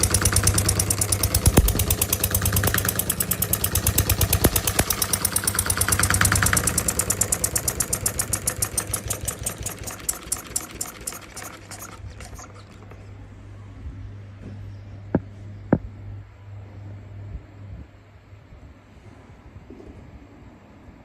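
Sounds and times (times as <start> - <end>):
diesel engine running down: 0.0 - 13.1
low steady hum: 10.8 - 21.0.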